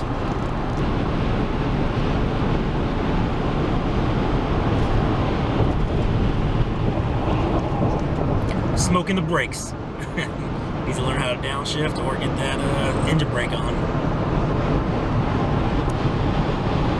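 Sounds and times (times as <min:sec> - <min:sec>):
road and wind noise inside car: 0:00.0 - 0:16.9.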